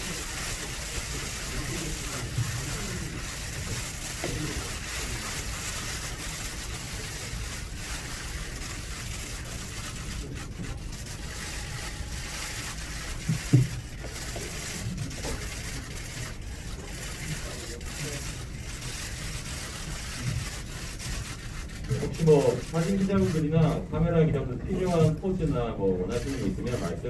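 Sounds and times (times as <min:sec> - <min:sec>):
crowd hubbub: 0:00.0 - 0:07.9.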